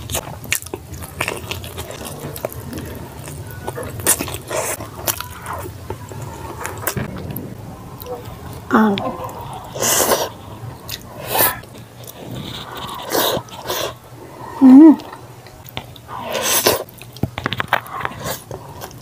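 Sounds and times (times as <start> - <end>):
wet chewing and lip smacking: 0.0 - 7.0.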